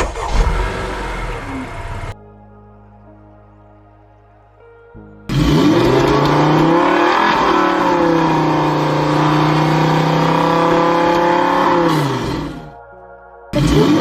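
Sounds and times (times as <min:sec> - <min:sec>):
car engine accelerating: 0:00.0 - 0:02.2, 0:05.3 - 0:12.7, 0:13.6 - 0:14.0.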